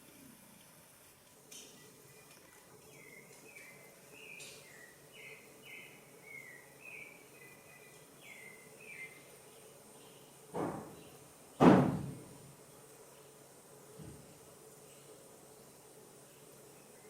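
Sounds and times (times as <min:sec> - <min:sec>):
bird chirping: 0:01.5 - 0:11.3.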